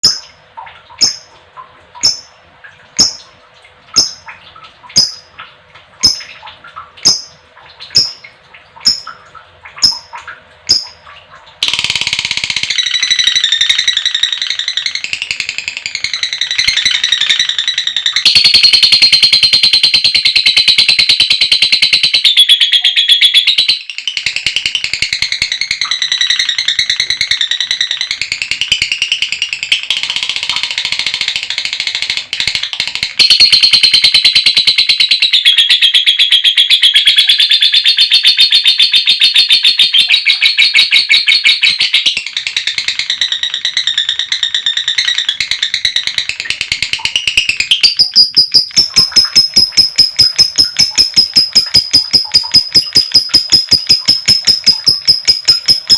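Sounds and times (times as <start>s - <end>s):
lovebird chattering: 1.0s - 1.3s, 2.0s - 2.3s, 3.0s - 3.3s, 4.0s - 4.3s, 5.0s - 5.3s, 6.0s - 6.4s, 7.0s - 9.2s, 9.8s - 11.0s, 33.2s - 55.9s.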